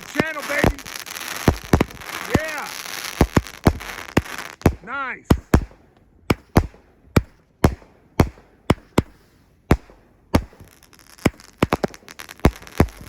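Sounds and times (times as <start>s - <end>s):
firework shot reports: 0.0s - 6.8s
firework crackling: 0.0s - 13.0s.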